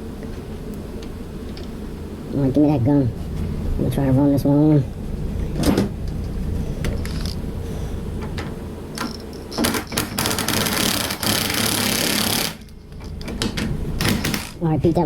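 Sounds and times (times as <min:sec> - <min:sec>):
impact gun rattling: 0:09.0 - 0:12.6, 0:14.0 - 0:14.6.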